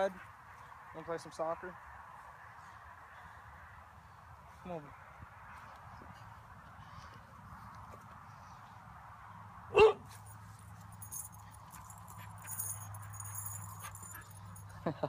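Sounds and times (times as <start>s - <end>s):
dog barking: 9.7s - 10.0s.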